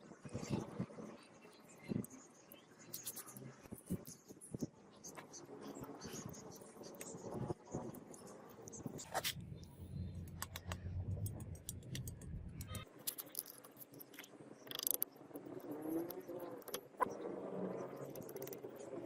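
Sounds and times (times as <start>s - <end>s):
low hum: 8.8s - 12.8s.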